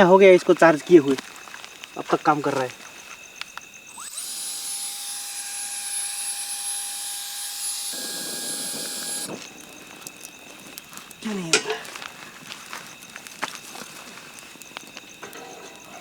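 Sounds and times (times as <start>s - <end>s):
blender motor whining: 3.9s - 9.7s.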